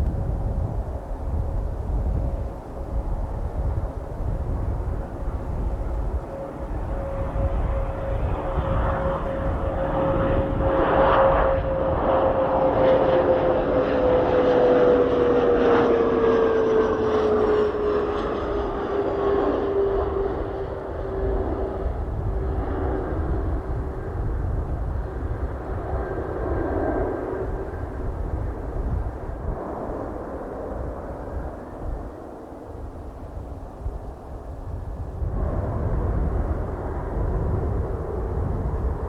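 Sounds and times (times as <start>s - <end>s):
airplane engine passing by: 0.0s - 39.0s.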